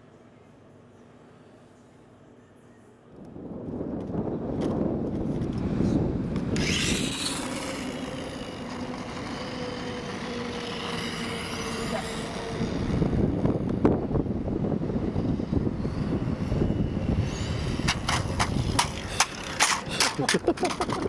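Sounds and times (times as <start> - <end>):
motor whine: 4.2 - 20.2.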